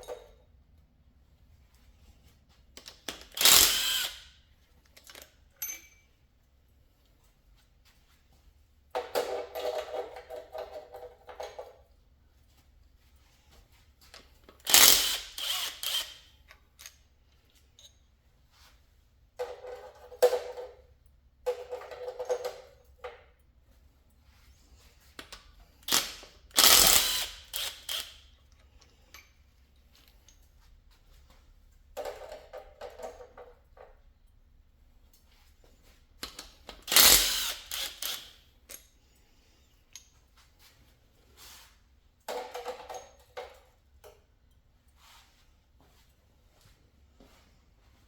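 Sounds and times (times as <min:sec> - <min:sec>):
hand ratchet clicking: 0:02.8 - 0:04.4, 0:14.5 - 0:17.0, 0:25.8 - 0:28.3, 0:36.2 - 0:38.9
metal parts clinking and clanking: 0:04.8 - 0:06.2.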